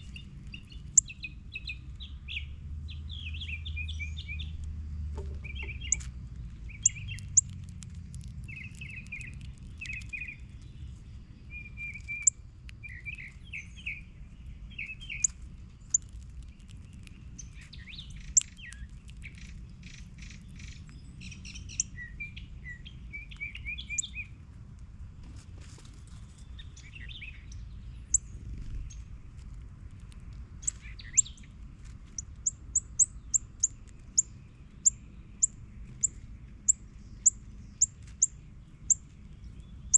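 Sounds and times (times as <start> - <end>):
songbirds chirping and calling: 0.0 - 24.4, 25.9 - 39.9
low steady rumble: 0.0 - 39.9
sharp high-pitched bird chips: 5.5 - 6.1, 6.7 - 14.1, 14.8 - 22.0.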